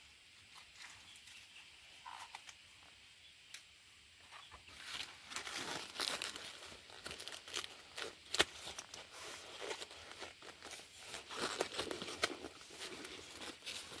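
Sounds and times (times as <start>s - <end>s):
rustling and crackling: 4.2s - 14.0s.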